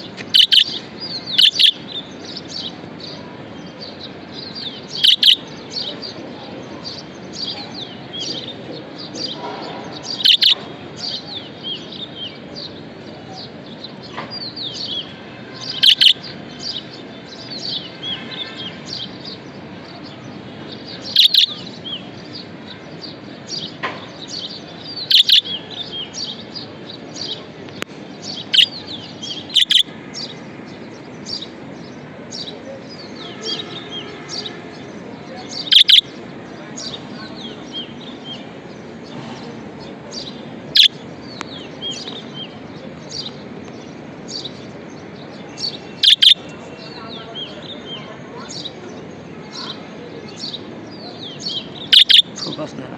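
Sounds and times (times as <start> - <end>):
loud sharp bird calls: 0.0 - 52.8
budgerigars chirping: 0.2 - 2.4, 4.6 - 5.9, 10.0 - 11.3, 15.6 - 16.8, 21.0 - 21.8, 24.3 - 26.4, 28.2 - 29.9, 35.5 - 36.1, 40.2 - 41.0, 45.6 - 47.7, 51.2 - 52.7.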